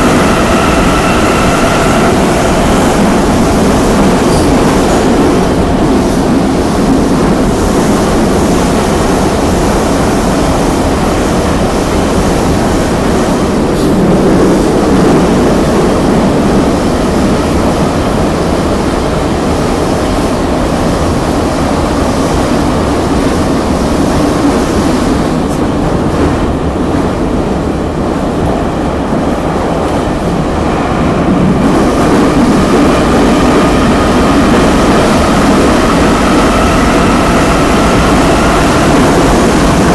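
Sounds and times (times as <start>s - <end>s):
traction motor whine: 0.0s - 4.5s
train wheels rumbling on rails: 0.0s - 39.9s.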